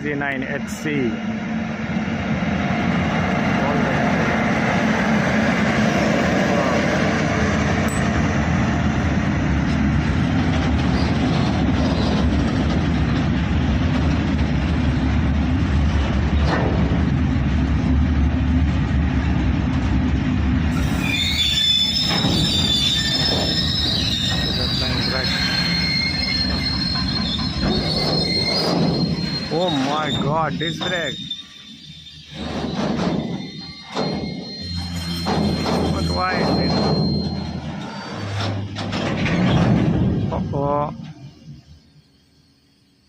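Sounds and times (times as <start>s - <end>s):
freight train rumbling: 0.0s - 42.7s
high metallic squeal: 20.7s - 43.0s.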